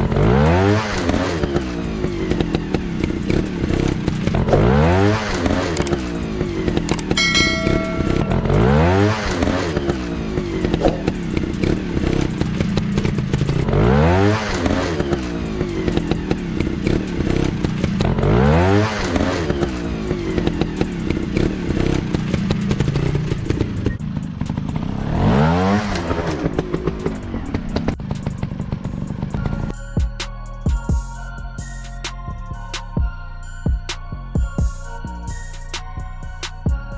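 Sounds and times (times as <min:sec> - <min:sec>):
dirt bike engines revving: 0:00.0 - 0:29.6.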